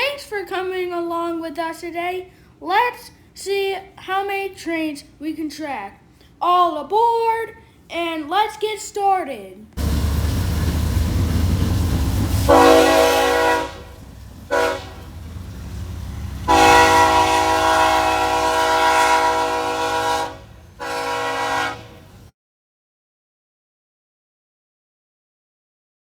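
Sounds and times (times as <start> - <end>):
train passing low rumble: 9.8 - 22.3
locomotive air horn blasts: 12.5 - 15.2, 16.3 - 22.3.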